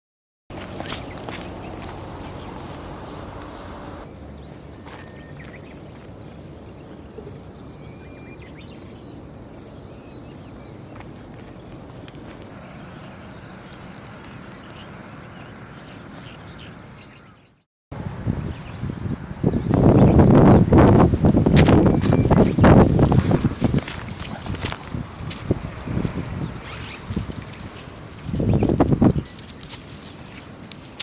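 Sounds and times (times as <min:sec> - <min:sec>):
insect chirring: 0:00.5 - 0:31.0.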